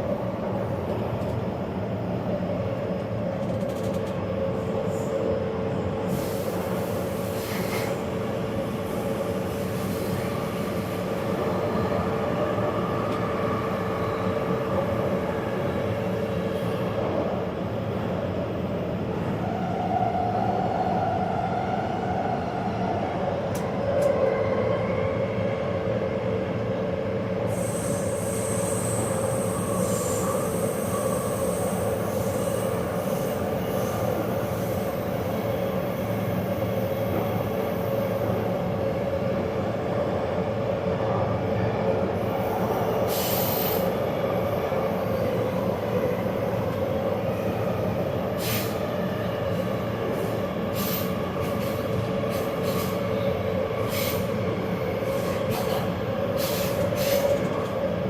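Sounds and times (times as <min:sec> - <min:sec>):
metro train rumbling: 0:00.0 - 0:58.0.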